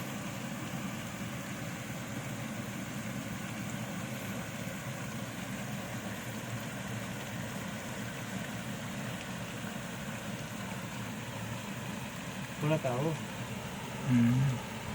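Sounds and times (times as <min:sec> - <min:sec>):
low engine drone: 0:00.0 - 0:14.9.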